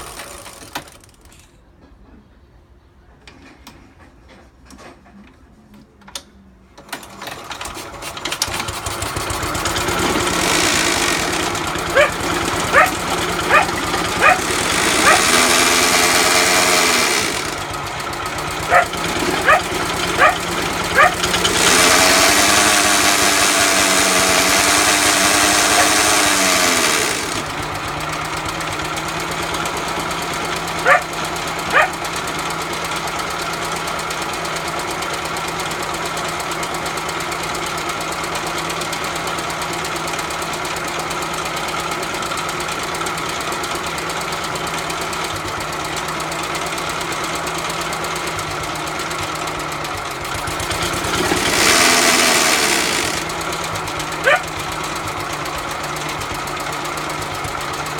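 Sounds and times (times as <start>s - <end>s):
lawnmower engine running: 6.8s - 57.9s
dog barking: 11.8s - 16.1s, 18.6s - 21.4s, 25.4s - 26.1s, 30.8s - 32.0s, 54.2s - 54.6s.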